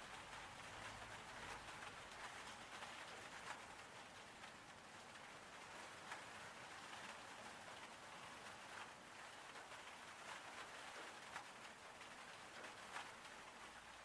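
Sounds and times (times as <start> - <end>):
rain pattering: 0.0 - 14.0.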